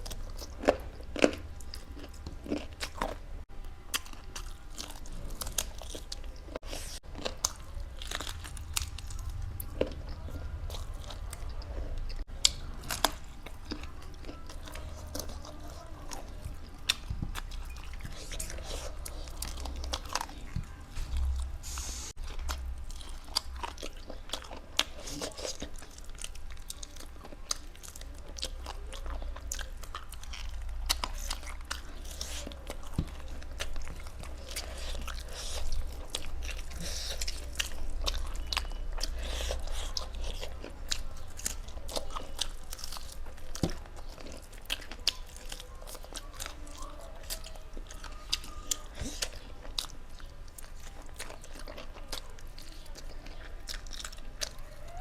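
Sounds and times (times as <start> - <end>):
steady low hum: 0.0 - 47.6
person chewing and crunching: 0.0 - 55.0.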